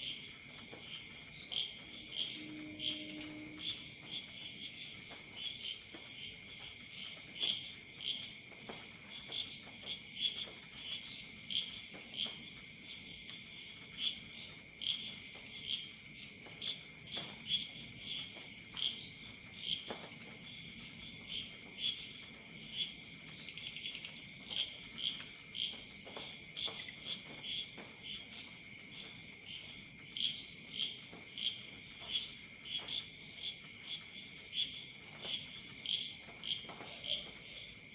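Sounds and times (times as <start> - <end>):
crickets chirping: 0.0 - 37.9.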